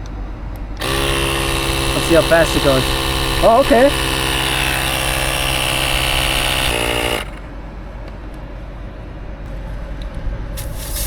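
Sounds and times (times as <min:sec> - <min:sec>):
air hissing: 0:00.6 - 0:07.5, 0:10.6 - 0:11.0
tyre inflator motor whining: 0:00.6 - 0:07.7.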